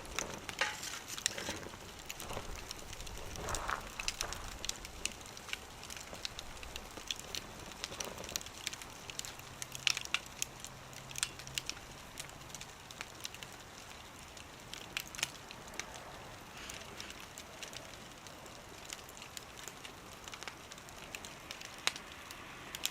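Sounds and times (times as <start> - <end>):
wood fire crackling and popping: 0.0 - 22.9.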